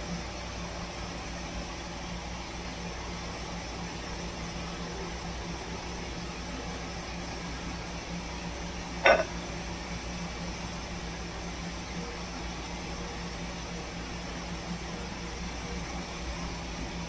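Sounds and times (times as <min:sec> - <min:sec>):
electrical hum and hiss: 0:00.0 - 0:17.0
short ringing clink: 0:09.0 - 0:09.3.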